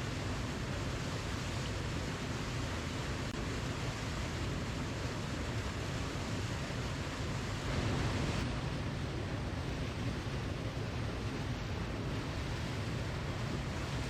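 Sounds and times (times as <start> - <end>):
waterfall rushing: 0.1 - 8.5.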